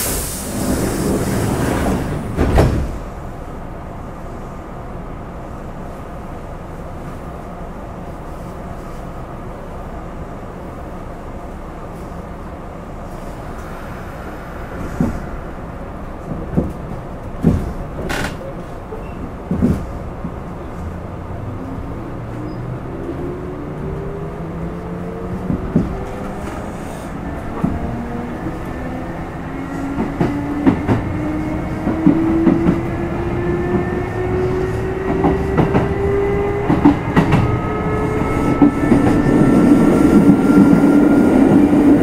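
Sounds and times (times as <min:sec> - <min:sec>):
train doors closing with hiss: 0:00.0 - 0:03.4, 0:13.0 - 0:20.8, 0:25.4 - 0:28.8
steady train car hum: 0:00.0 - 0:42.0
clunks and knocks from car: 0:17.4 - 0:18.1, 0:19.5 - 0:20.0.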